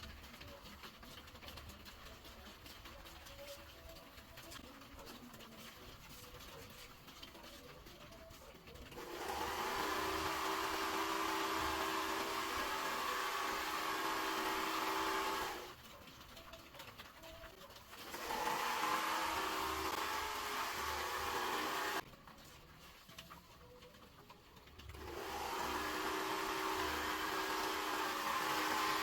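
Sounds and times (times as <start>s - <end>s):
small motor whirring: 8.9s - 15.8s, 18.0s - 22.0s, 24.9s - 29.0s.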